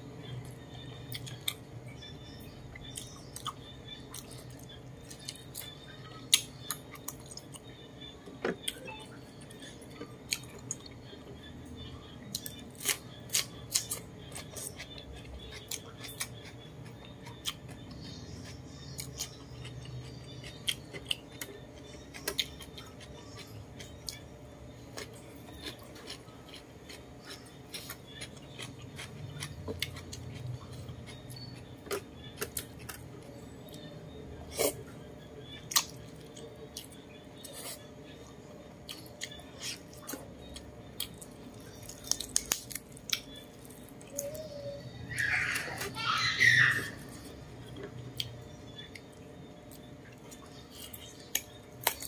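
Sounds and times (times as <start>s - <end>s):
chewing and mouth smacks: 38.8s - 44.3s.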